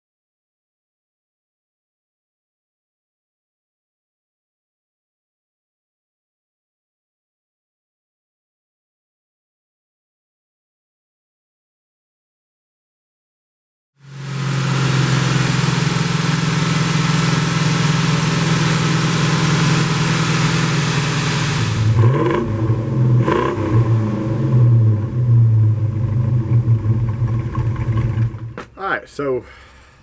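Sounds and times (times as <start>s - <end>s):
engine revving: 14.0s - 28.7s.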